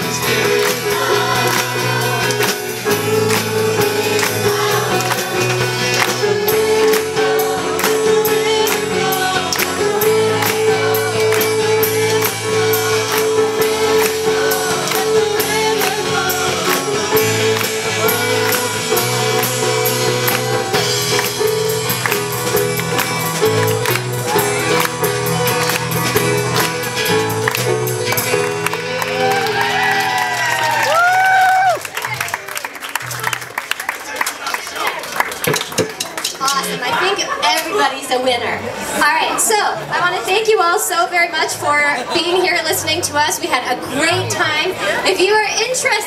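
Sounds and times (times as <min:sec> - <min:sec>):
voices singing: 0:00.0 - 0:21.8
rhythmic percussion beat: 0:00.0 - 0:31.1, 0:35.2 - 0:36.9
band playing: 0:00.0 - 0:46.0.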